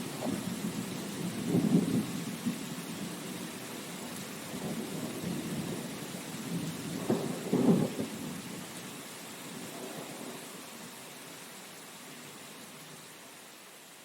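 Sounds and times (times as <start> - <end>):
rain hissing: 0.0 - 14.0
thunder rumbling and cracking: 0.1 - 3.2, 4.5 - 8.5.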